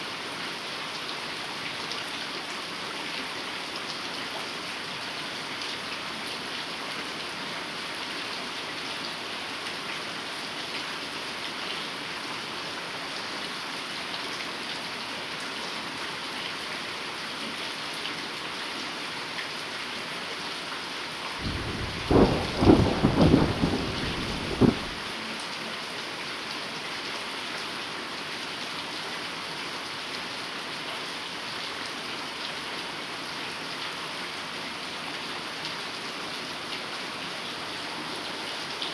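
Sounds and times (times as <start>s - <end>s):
heavy rain falling: 21.3s - 25.5s
thunder clap with sharp cracks: 21.4s - 25.1s.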